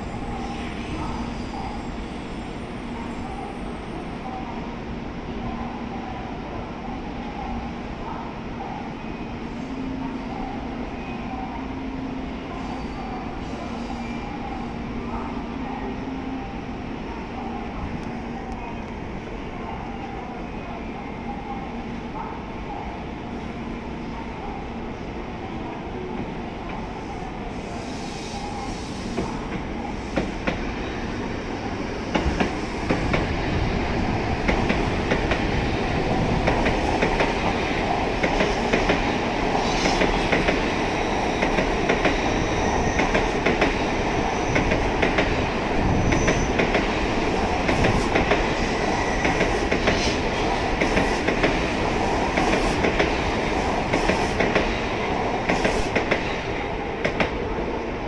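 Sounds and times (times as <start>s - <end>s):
train wheels rumbling: 27.9s - 57.9s.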